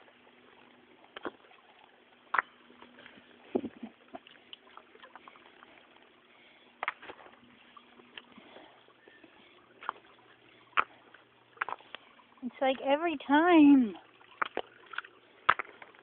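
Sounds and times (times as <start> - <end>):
stream trickling: 0.0 - 16.0.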